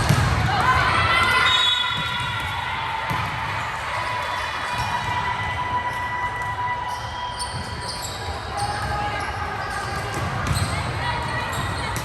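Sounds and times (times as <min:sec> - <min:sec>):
gym hall noise: 0:00.0 - 0:12.0.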